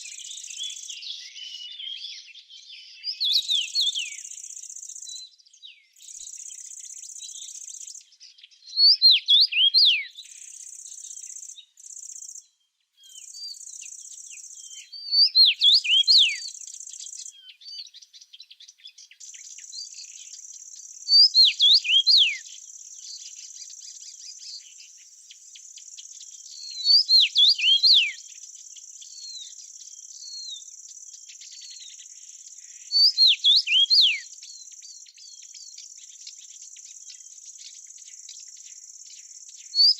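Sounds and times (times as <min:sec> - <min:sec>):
small bird singing: 0:00.0 - 0:39.9.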